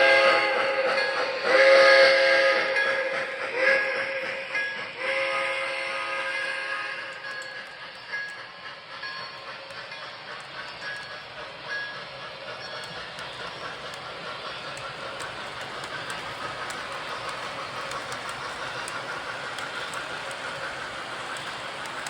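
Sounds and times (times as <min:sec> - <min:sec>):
model train rolling: 0:00.0 - 0:22.0
wheels clicking over rails: 0:06.4 - 0:22.0.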